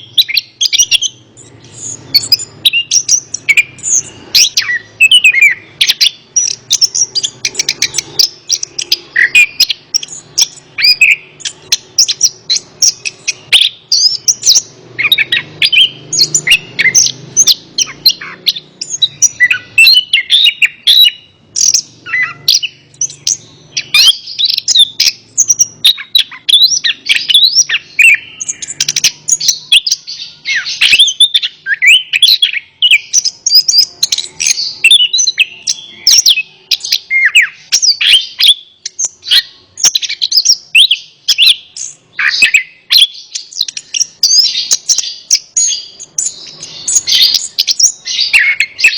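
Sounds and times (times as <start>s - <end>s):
thrush singing: 0.0s - 48.9s.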